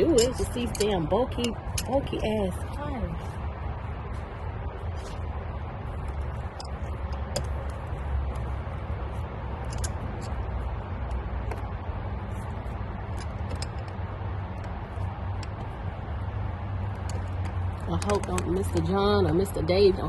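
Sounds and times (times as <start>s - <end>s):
pliers clicking on hose clamps: 0.0s - 2.0s, 16.8s - 18.9s
steady low rumble: 0.0s - 20.0s.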